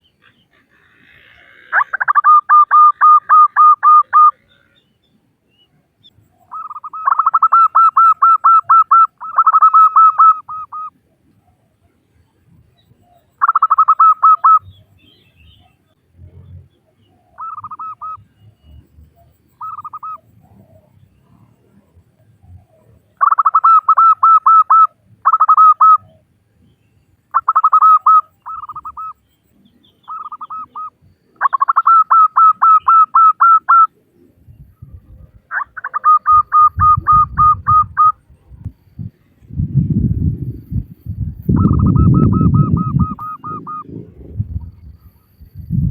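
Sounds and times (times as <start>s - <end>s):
dove cooing: 0.6s - 4.8s, 6.4s - 11.0s, 13.1s - 14.7s, 17.2s - 18.2s, 22.5s - 26.3s, 27.3s - 29.2s, 30.1s - 33.9s, 34.8s - 38.2s, 41.5s - 44.6s.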